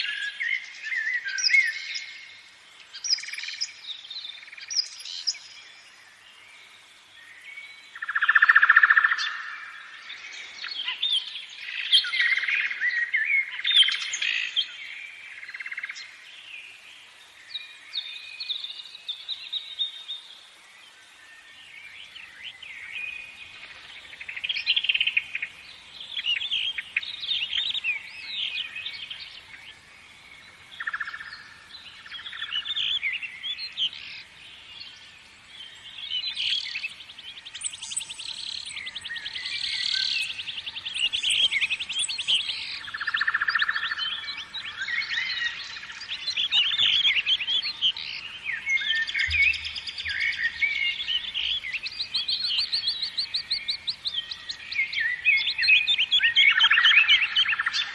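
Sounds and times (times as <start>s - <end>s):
birds chirping and singing: 21.4s - 57.9s.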